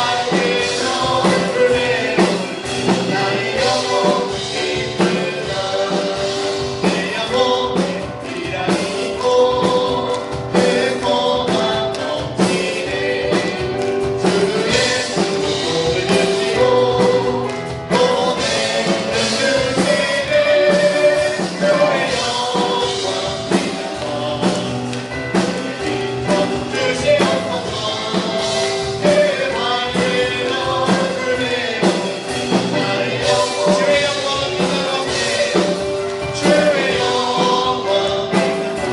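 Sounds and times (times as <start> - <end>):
band playing a steady beat: 0.0 - 38.9
group singing a worship song: 0.0 - 38.9.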